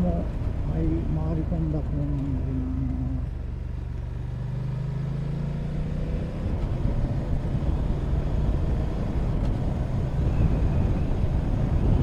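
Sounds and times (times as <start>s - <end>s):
wind rumble on microphone: 6.4s - 12.0s.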